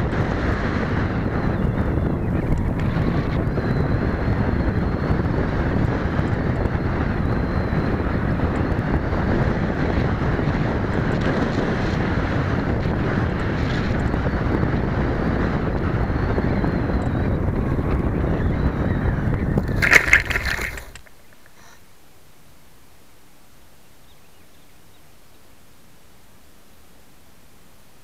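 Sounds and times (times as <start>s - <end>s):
wind buffeting microphone: 0.0s - 21.5s
distant model engines whining: 0.0s - 21.8s.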